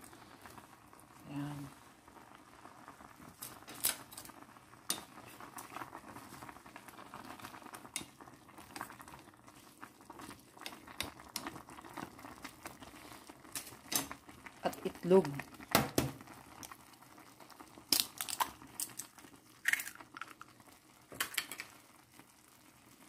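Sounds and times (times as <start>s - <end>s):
broth bubbling in a pot: 0.0s - 23.0s.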